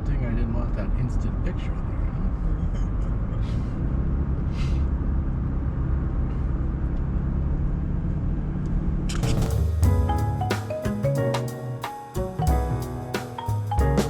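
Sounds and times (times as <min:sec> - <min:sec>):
car cabin road rumble: 0:00.0 - 0:10.5
music: 0:09.2 - 0:14.0.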